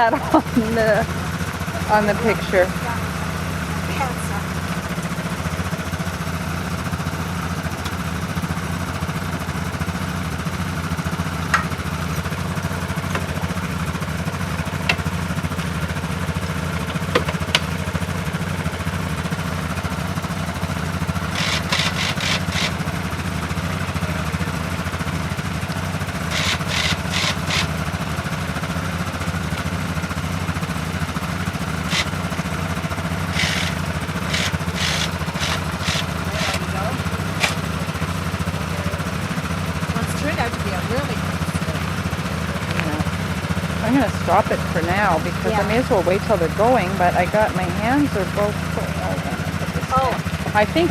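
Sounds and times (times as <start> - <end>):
atv engine running: 0.0 - 50.9
rapid clicking or rattling: 20.2 - 23.2, 26.0 - 28.4, 31.2 - 45.0
sharp ticks: 21.2 - 23.0, 25.7 - 27.8, 31.2 - 32.4, 33.2 - 37.8.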